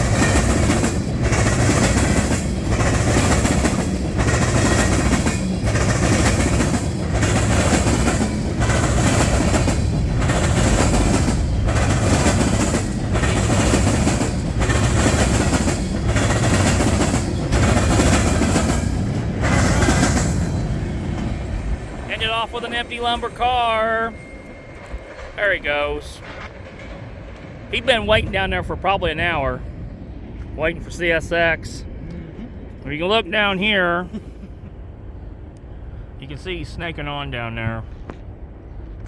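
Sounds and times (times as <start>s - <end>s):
train wheels clattering on rails: 0.0s - 28.6s.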